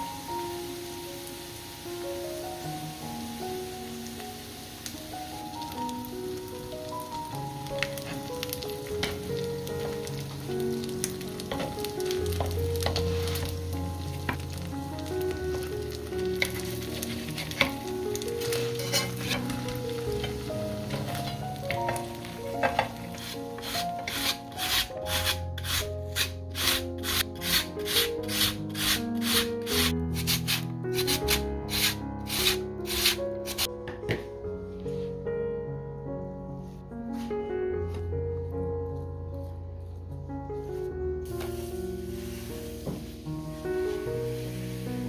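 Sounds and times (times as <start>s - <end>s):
hash brown sizzling in oil: 0.0s - 33.7s, 41.3s - 45.0s
light background music: 0.0s - 45.0s
potato scraping over slicer: 23.1s - 33.6s.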